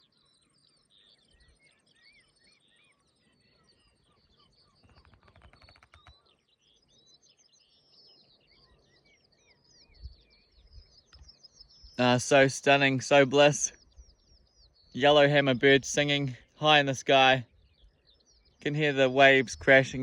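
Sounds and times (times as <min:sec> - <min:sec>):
songbirds chirping and trilling: 0:00.0 - 0:20.0
distant surf: 0:15.0 - 0:17.4.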